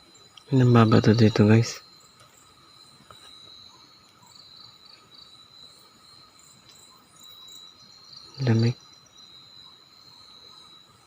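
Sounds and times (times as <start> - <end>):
crickets and insects trilling: 0.0 - 11.0
faint ticks: 0.2 - 0.5, 2.1 - 4.3, 6.5 - 7.0.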